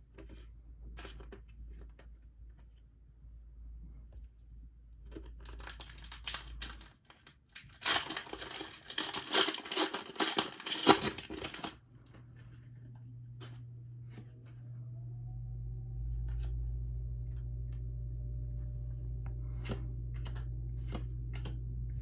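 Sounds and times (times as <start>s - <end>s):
foil wrapper crinkling and tearing: 5.2s - 11.8s.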